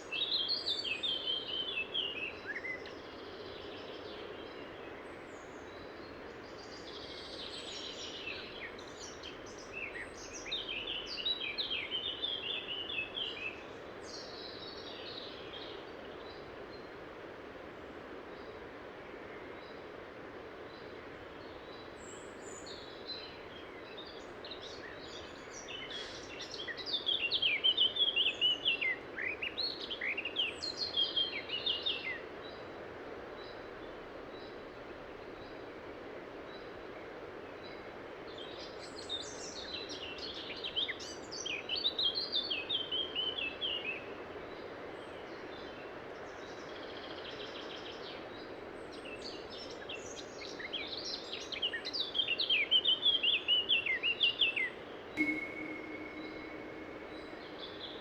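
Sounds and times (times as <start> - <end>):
faint single high bird note: 55.2 - 58.0.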